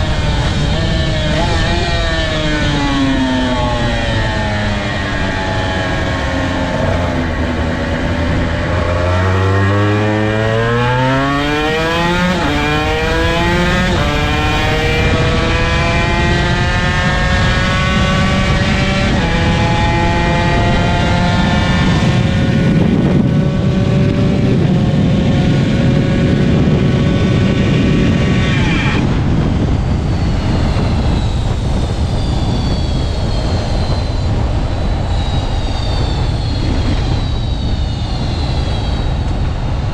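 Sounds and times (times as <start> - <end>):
rushing noise: 0.0 - 21.4
motorcycle engine accelerating: 0.0 - 39.9.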